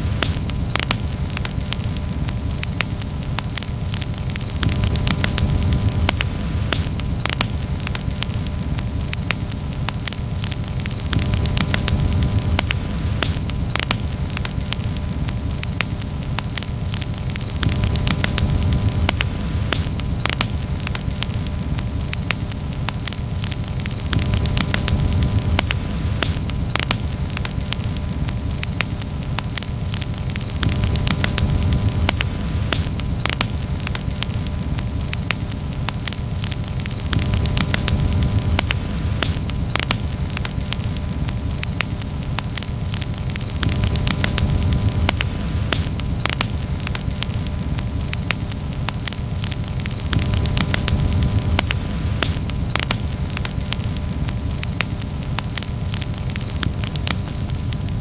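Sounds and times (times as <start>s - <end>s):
campfire crackling and popping: 0.0s - 58.0s
low fire rumble: 0.0s - 58.0s.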